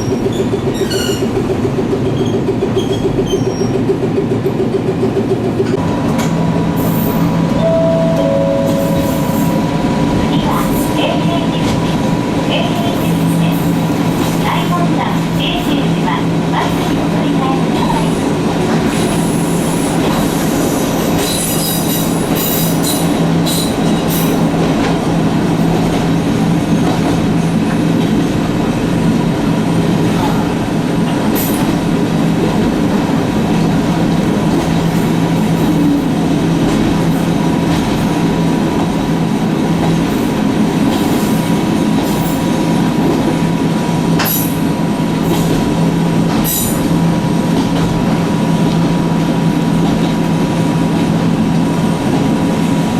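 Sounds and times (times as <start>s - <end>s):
wheel squeals: 0.0s - 1.4s
railcar motors and wheels droning: 0.0s - 52.9s.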